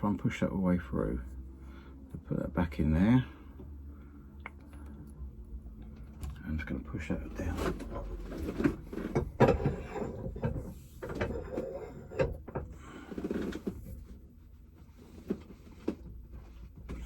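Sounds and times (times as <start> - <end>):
metal tools knocking and scraping: 7.5 - 12.8.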